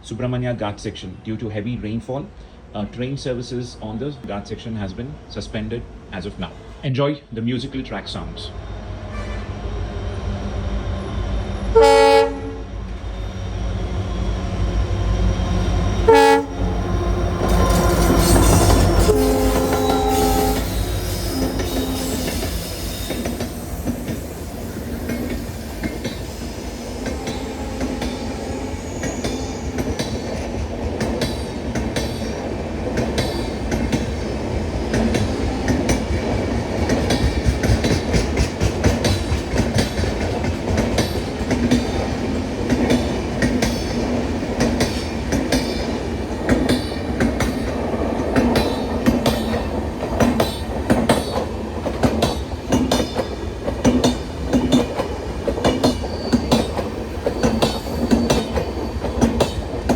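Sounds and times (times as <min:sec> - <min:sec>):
train horn blasts: 0:09.0 - 0:09.6, 0:11.7 - 0:12.8, 0:16.0 - 0:23.7, 0:26.8 - 0:30.2
train wheels clattering over rails: 0:13.9 - 0:59.9.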